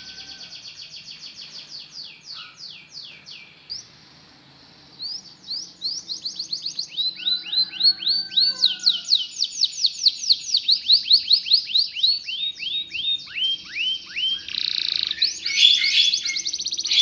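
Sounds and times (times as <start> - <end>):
canary singing: 5.0 - 17.0.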